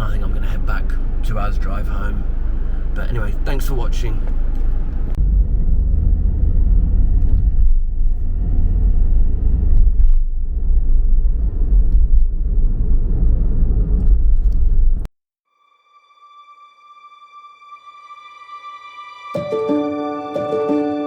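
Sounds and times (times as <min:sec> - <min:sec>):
car engine and road rumble: 0:00.0 - 0:15.1.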